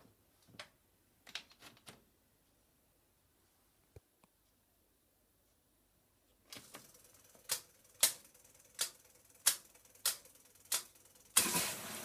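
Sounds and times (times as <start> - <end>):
sharp mechanical clicks: 6.5 - 11.5
washing machine hum: 6.5 - 12.0.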